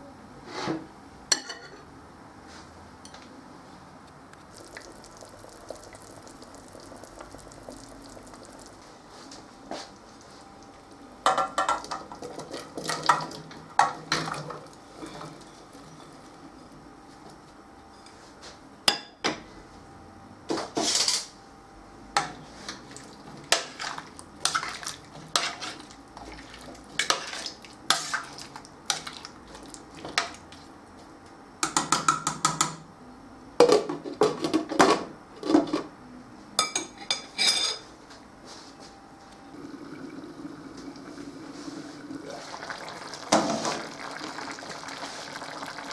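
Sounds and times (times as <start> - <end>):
dishes and cutlery clinking: 1.3 - 1.9, 36.6 - 37.9.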